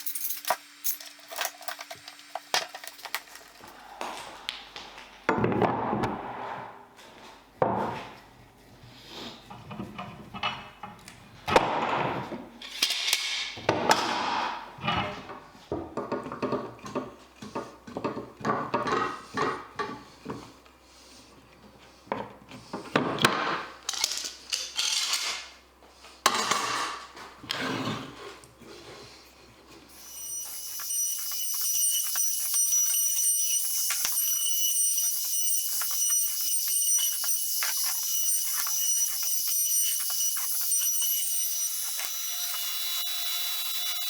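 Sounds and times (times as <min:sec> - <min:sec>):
wood and tools knocking: 0:15.7 - 0:20.4.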